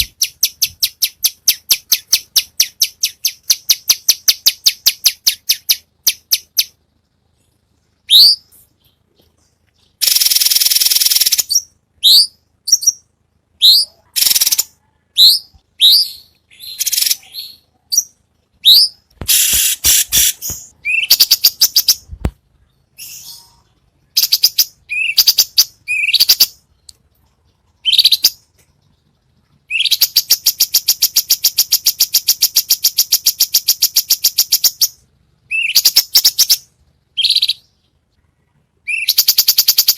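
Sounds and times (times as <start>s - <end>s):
songbird whistles and chirps: 8.0s - 28.7s, 29.6s - 39.9s
fast bird trill: 9.9s - 22.1s, 23.0s - 26.6s, 29.7s - 37.7s, 38.9s - 39.9s.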